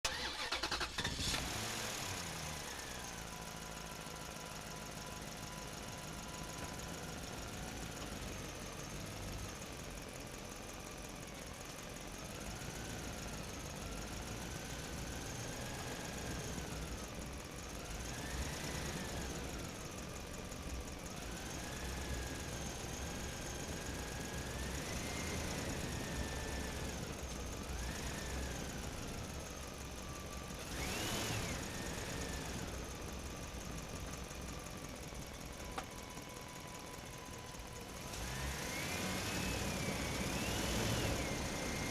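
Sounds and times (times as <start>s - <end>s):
motor revving with whine: 30.6s - 32.4s, 38.1s - 41.9s.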